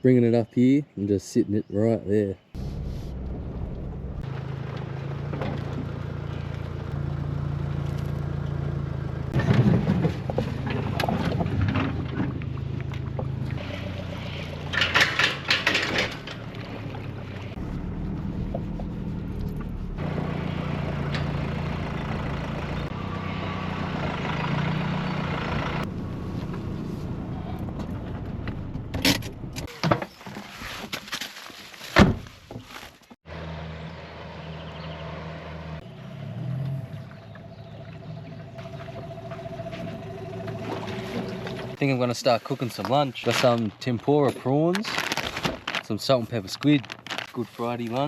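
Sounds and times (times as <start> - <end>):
engine humming: 2.6 - 29.7, 33.2 - 42.0.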